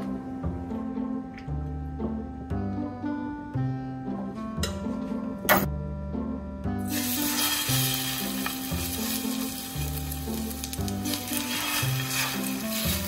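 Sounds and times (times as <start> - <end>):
batter sizzling in hot oil: 6.9 - 13.0.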